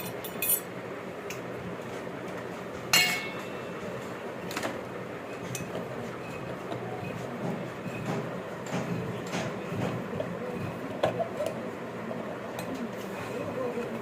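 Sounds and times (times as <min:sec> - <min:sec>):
metal parts clinking: 0:00.0 - 0:00.7.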